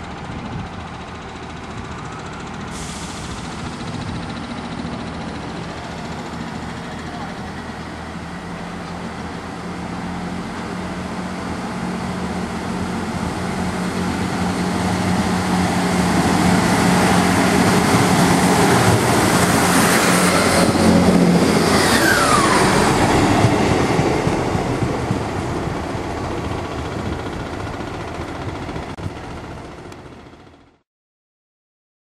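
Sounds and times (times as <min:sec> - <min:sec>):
diesel train engine humming: 0:00.0 - 0:30.8
train whine dropping in pitch: 0:09.8 - 0:28.1.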